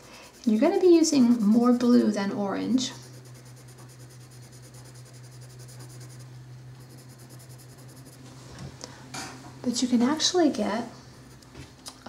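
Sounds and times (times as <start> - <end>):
pencil scratching on paper: 0.0 - 8.2
low electrical hum: 0.0 - 12.0.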